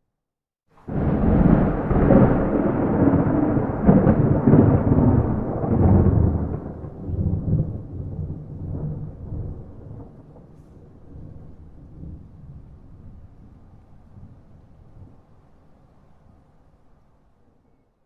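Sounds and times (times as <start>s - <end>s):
sharp thunder crack: 0.8s - 12.2s
thunder rumbling: 0.8s - 15.3s.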